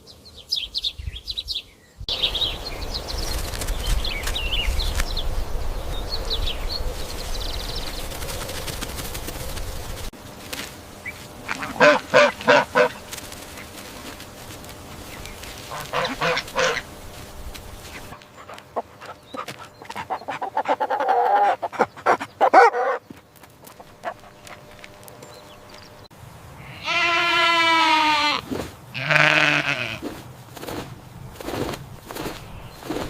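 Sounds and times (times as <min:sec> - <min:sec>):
rustling: 0:03.1 - 0:05.2, 0:06.9 - 0:18.6
goats bleating: 0:11.4 - 0:13.0, 0:26.6 - 0:30.0.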